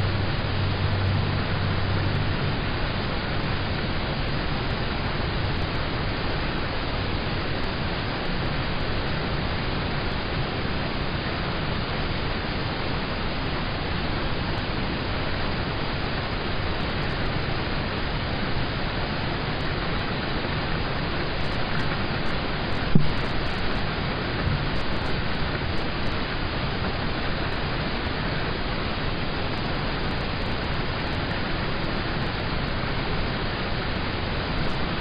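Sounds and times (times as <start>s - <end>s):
rain on a car roof: 15.4s - 33.0s.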